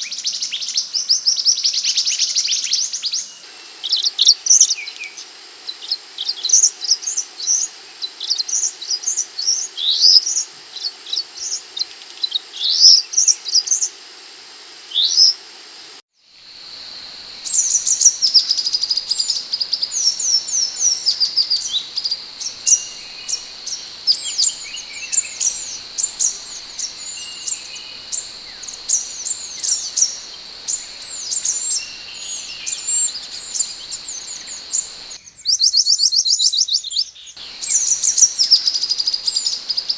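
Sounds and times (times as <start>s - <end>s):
steady high whine: 16.5s - 35.2s
bird chirping rapidly: 16.6s - 35.2s, 37.4s - 39.9s.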